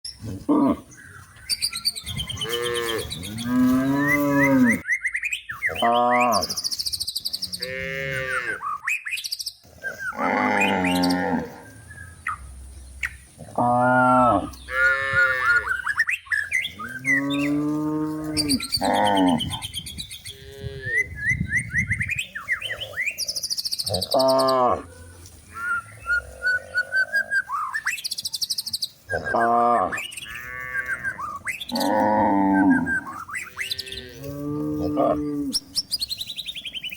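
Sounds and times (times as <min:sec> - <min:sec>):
cows mooing: 0:02.1 - 0:04.8, 0:07.5 - 0:08.6, 0:09.8 - 0:11.8, 0:13.4 - 0:15.8, 0:16.7 - 0:19.7, 0:23.9 - 0:27.2, 0:29.1 - 0:35.6.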